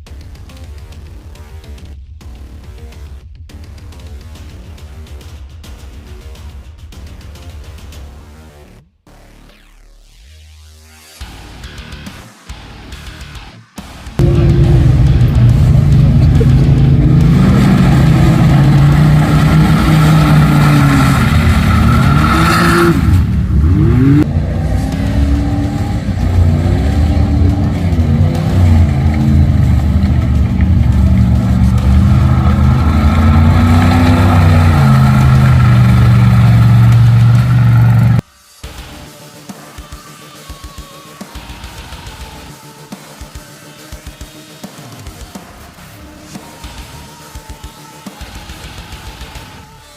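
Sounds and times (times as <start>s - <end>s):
truck engine revving hard: 14.2s - 38.2s.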